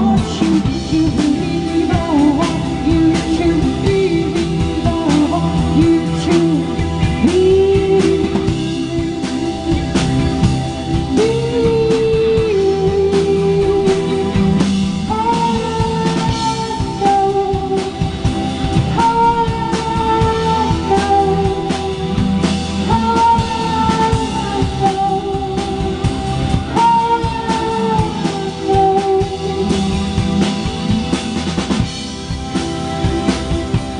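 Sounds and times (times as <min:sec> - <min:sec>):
rock band playing live: 0:00.0 - 0:33.9
held melodic phrase: 0:13.4 - 0:26.0.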